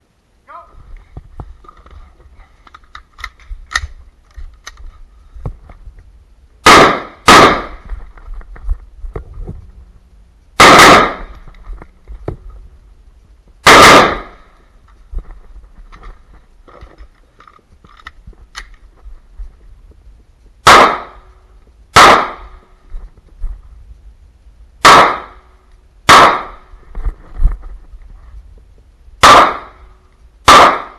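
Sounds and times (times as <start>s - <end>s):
pistol shots: 6.6s - 7.8s, 10.6s - 11.4s, 13.6s - 14.4s, 20.6s - 21.2s, 22.0s - 22.6s, 24.8s - 25.4s, 26.1s - 26.6s, 29.2s - 29.8s, 30.4s - 30.9s
rifle gunshots: 6.6s - 7.8s, 10.6s - 11.4s, 13.6s - 14.4s, 20.6s - 21.2s, 22.0s - 22.6s, 24.8s - 25.4s, 26.1s - 26.6s, 29.2s - 29.8s, 30.4s - 30.9s.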